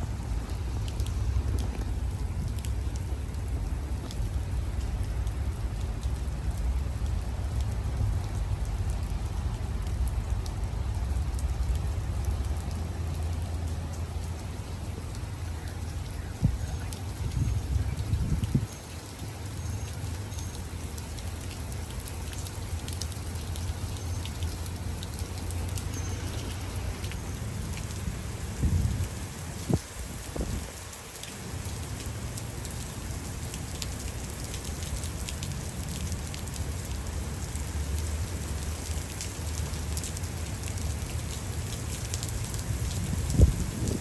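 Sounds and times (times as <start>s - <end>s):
heavy rain falling: 0.0s - 44.0s
thunder rumbling: 42.7s - 44.0s.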